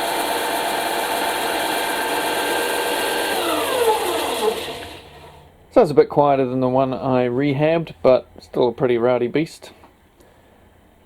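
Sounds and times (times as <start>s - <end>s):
belt and disc sander whining: 0.0s - 5.5s.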